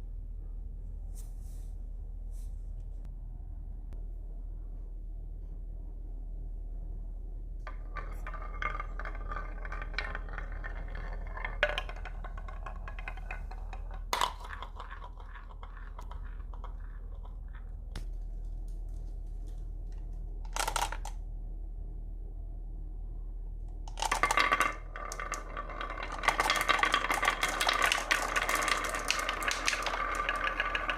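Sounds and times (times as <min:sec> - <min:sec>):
marbles rattling down wooden run: 0:07.7 - 0:18.1, 0:20.5 - 0:21.2, 0:23.9 - 0:30.9.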